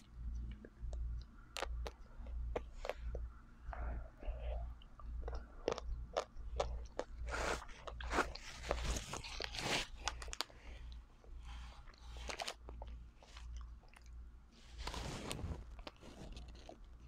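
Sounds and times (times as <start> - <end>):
crunching ice cream bar: 5.2 - 10.6.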